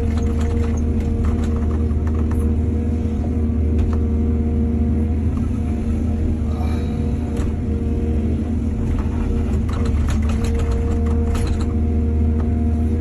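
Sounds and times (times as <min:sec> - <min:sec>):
clatters and knocks: 0:00.0 - 0:02.5, 0:08.8 - 0:11.8
excavator diesel engine running: 0:00.0 - 0:13.0.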